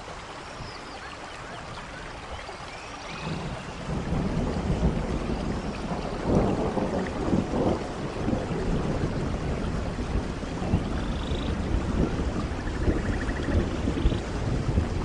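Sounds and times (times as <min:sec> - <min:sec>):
rain falling in forest: 0:00.0 - 0:15.0
thunder rumbling: 0:03.2 - 0:15.0.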